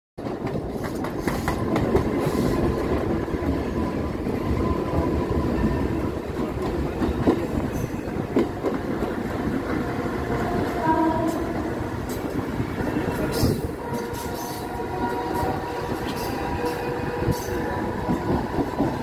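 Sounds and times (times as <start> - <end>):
train rumble: 0.2 - 19.0.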